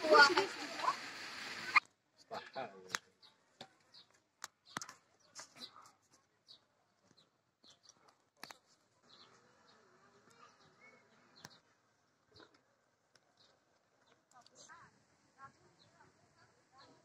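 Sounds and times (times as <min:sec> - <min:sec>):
faint bird chirps: 0:01.7 - 0:17.0.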